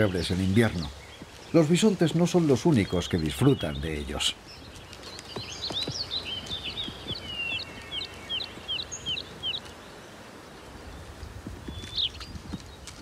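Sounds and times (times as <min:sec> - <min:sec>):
soft outdoor ambience: 0:00.0 - 0:13.0.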